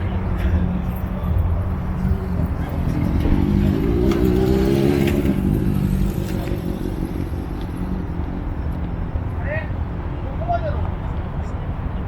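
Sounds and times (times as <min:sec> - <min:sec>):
car engine revving: 0:02.2 - 0:07.9.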